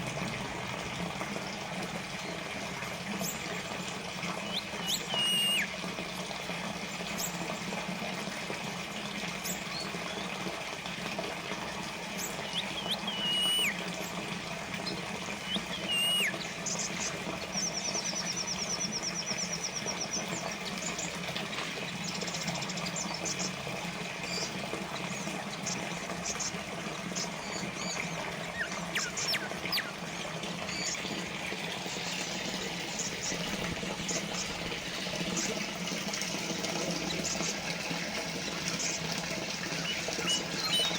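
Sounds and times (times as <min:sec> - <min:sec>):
water fountain trickling: 0:00.0 - 0:40.9
bird whistles and chirps: 0:04.4 - 0:05.7, 0:12.2 - 0:13.8, 0:15.4 - 0:17.0, 0:27.4 - 0:30.0, 0:39.7 - 0:40.9.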